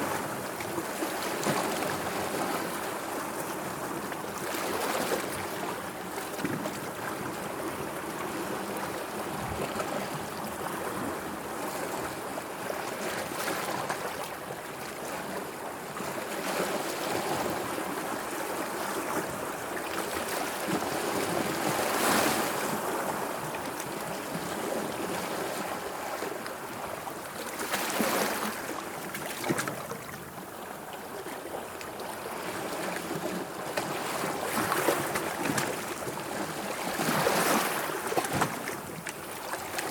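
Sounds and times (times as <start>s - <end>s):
sea water lapping: 17.2s - 39.9s.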